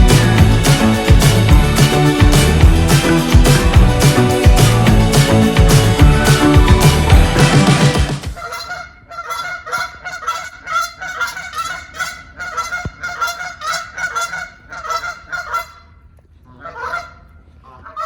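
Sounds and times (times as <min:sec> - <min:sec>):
music: 0:00.0 - 0:08.4
geese honking: 0:00.0 - 0:15.9, 0:16.5 - 0:18.0.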